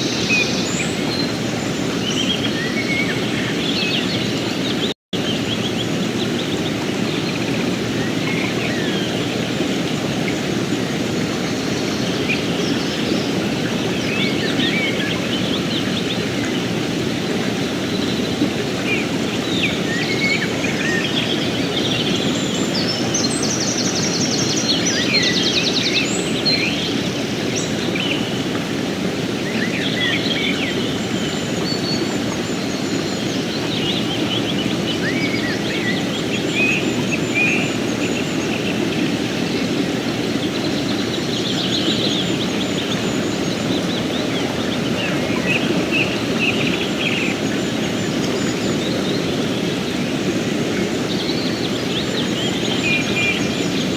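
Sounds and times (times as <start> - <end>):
river rushing over rocks: 0.0 - 53.9
songbirds chirping: 0.0 - 53.9.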